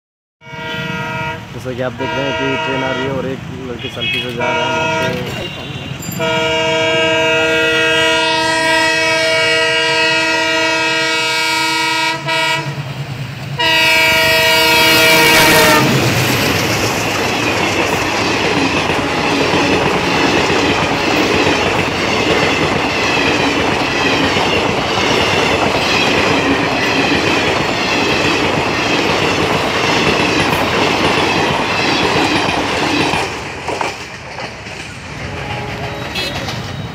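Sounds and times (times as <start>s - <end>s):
train horn blast: 0.4s - 12.8s, 13.6s - 16.1s, 35.3s - 36.6s
train wheels clattering over rail joints: 16.0s - 36.9s.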